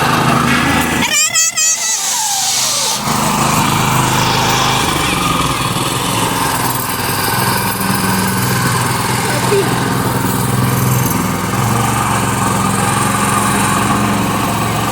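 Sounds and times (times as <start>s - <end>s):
small tractor engine running: 0.0s - 14.9s
warbling high-pitched sliding sound: 0.5s - 6.8s.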